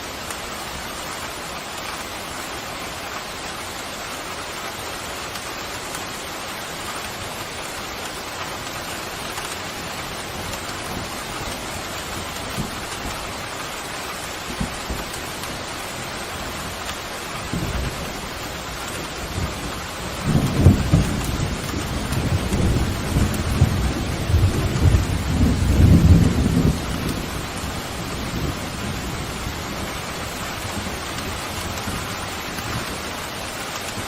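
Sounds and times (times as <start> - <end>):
steady rain falling: 0.0 - 34.0
thunder rumbling: 14.5 - 34.0.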